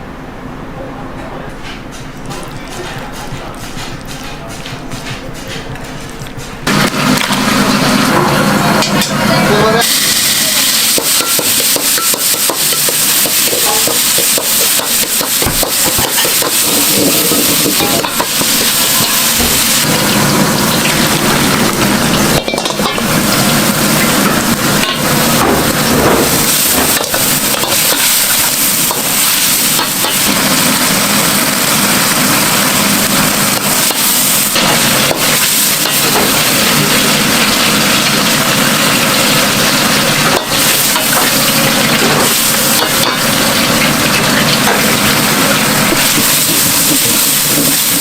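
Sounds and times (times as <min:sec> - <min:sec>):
spatula clacks and scrapes: 0:01.6 - 0:06.6, 0:11.2 - 0:19.6
food sizzling on griddle: 0:06.7 - 0:48.0.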